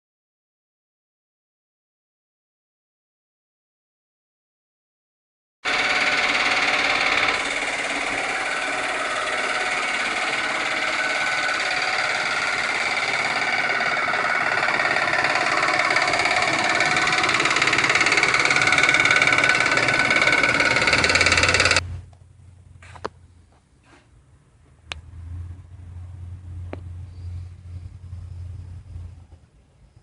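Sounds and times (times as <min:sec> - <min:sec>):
car engine running: 0:05.7 - 0:23.4
timing chain rattle: 0:05.8 - 0:21.8.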